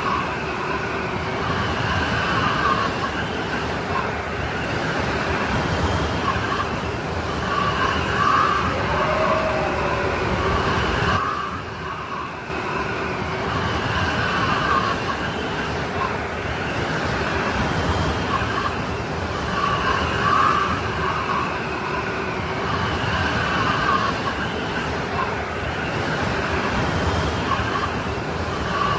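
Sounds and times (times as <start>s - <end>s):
strong wind whistling: 6.1s - 13.3s.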